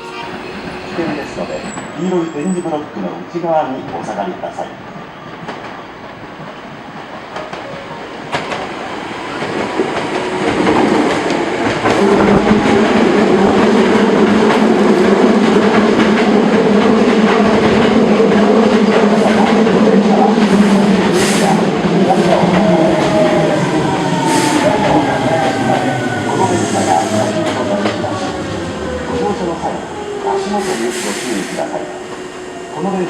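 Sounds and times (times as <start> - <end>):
electric train hum: 7.3 - 33.0.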